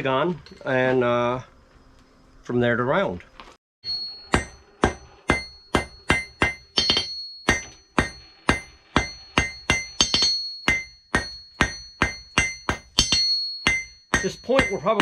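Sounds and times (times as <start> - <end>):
hammer striking hot metal on anvil: 3.8 - 15.0.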